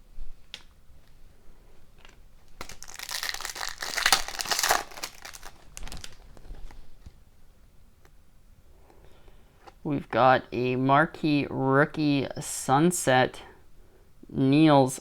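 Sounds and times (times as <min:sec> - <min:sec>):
foil wrapper crinkling: 0:02.0 - 0:06.8.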